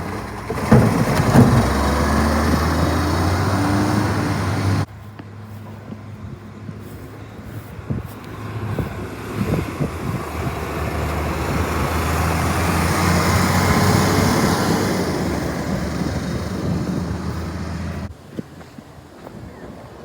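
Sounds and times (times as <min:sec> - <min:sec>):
garbage truck diesel engine running: 0:00.0 - 0:04.9, 0:09.8 - 0:18.1.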